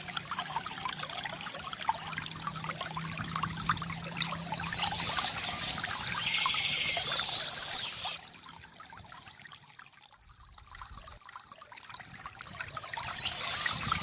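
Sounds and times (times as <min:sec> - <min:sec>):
stream trickling: 0:00.0 - 0:14.0
birds singing: 0:04.5 - 0:08.2, 0:12.9 - 0:14.0.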